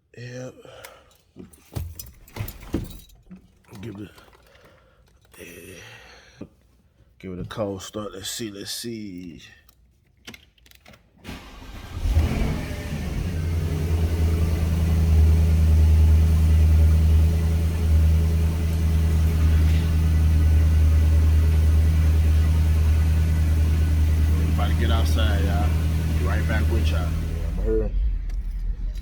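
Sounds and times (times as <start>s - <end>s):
car engine cranking and starting: 11.2s - 29.0s
car engine idling: 11.3s - 29.0s.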